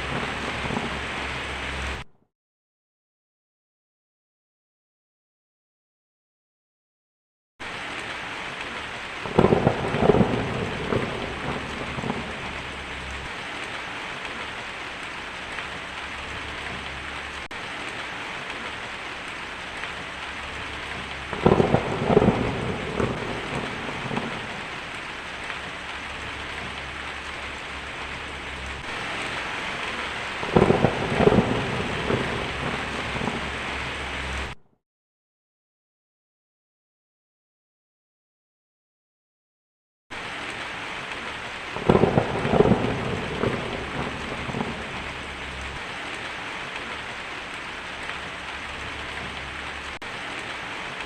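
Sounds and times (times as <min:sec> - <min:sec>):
heavy rain: 0:00.0 - 0:02.1, 0:07.6 - 0:34.6, 0:40.1 - 0:51.0
thunder crack and rumble: 0:00.0 - 0:02.1, 0:08.0 - 0:34.6, 0:40.2 - 0:51.0.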